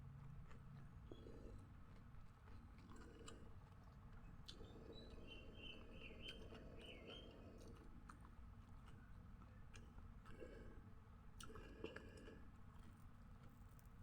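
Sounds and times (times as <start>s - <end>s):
person chewing: 0.4s - 4.7s, 11.4s - 13.0s.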